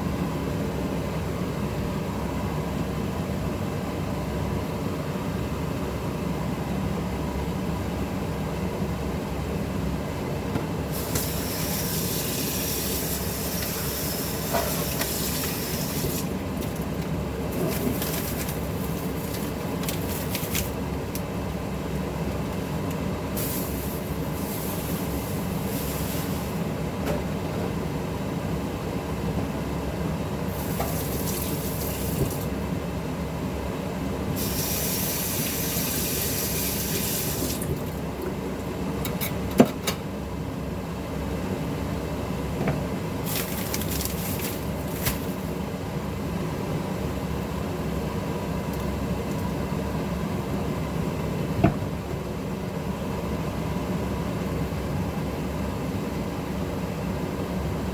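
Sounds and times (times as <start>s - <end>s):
cooking hissing: 10.9s - 16.6s, 23.3s - 26.7s, 30.5s - 32.4s, 34.4s - 37.7s.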